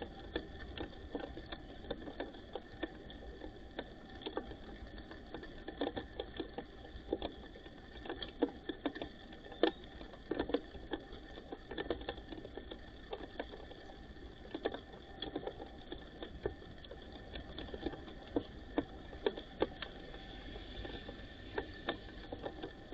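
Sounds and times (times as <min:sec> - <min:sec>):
faint steady hum: 0:00.0 - 0:22.9
birds pecking at seed: 0:05.3 - 0:22.9.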